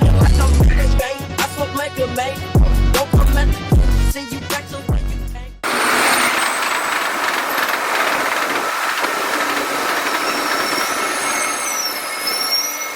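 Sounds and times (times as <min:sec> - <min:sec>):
rap music: 0:00.0 - 0:05.6
train rushing on rails: 0:05.6 - 0:12.9
faint high squeal: 0:09.4 - 0:12.9.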